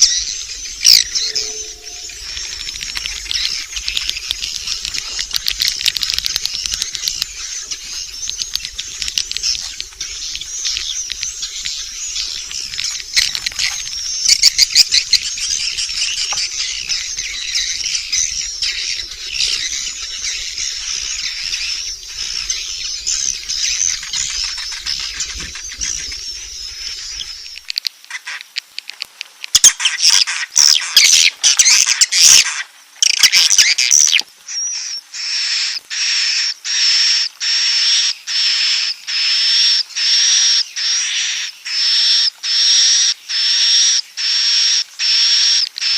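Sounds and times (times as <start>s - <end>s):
high twittering bird chorus: 0.0s - 28.4s
repeated high bird call: 0.0s - 28.4s.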